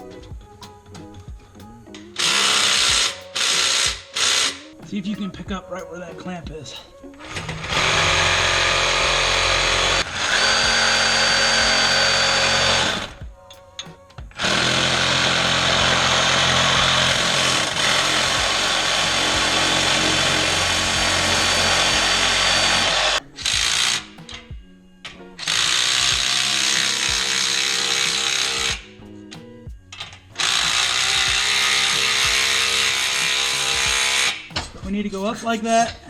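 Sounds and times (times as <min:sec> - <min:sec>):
handheld power tool running: 0:02.2 - 0:04.8, 0:07.2 - 0:13.2, 0:14.3 - 0:24.0, 0:25.4 - 0:28.9, 0:30.4 - 0:34.4.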